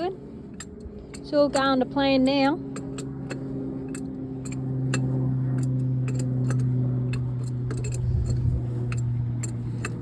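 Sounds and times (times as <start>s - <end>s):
tractor engine running: 0.0s - 10.0s
sharp ticks and clicks: 0.5s - 10.0s.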